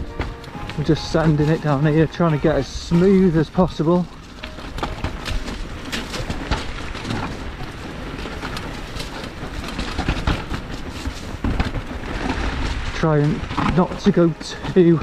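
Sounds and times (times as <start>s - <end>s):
bike rattling and knocking: 0.0s - 15.0s
tyre and wind noise: 0.0s - 15.0s.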